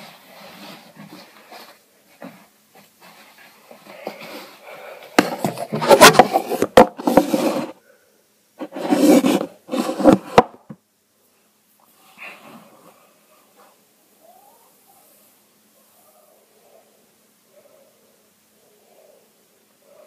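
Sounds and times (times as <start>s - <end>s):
material rustling and rubbing: 0.0s - 4.6s.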